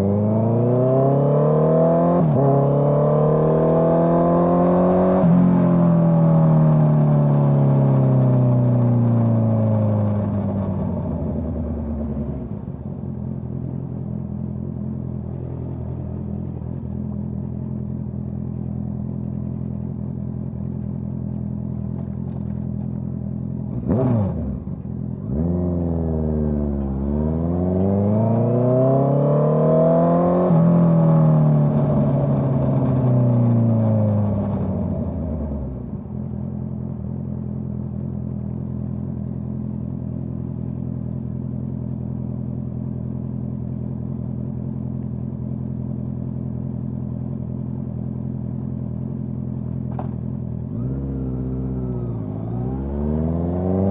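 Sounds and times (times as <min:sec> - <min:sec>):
motorcycle engine revving: 0:00.0 - 0:17.7, 0:23.6 - 0:35.9, 0:47.2 - 0:53.9.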